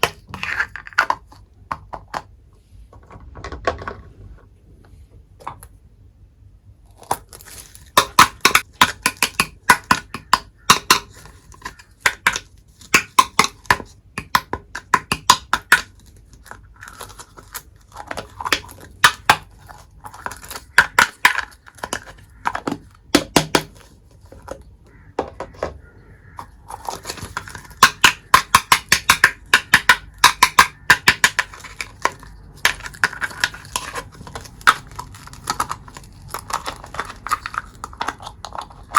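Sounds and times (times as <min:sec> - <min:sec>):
packaging crinkling: 0:07.0 - 0:08.0, 0:26.4 - 0:27.8, 0:31.4 - 0:38.9
plastic toy pieces clicking: 0:07.0 - 0:24.6, 0:26.3 - 0:38.9.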